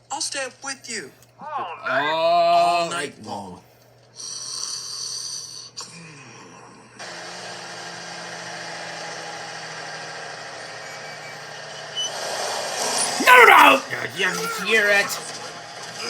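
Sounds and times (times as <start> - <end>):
truck engine drone: 7.0 - 16.0
road noise: 7.1 - 15.8.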